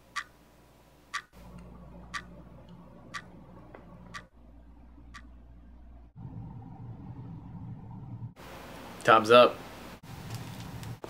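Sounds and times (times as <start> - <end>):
wristwatch ticking: 0.1 - 0.3, 1.1 - 1.4, 3.1 - 3.4
faint low hum: 0.4 - 11.0.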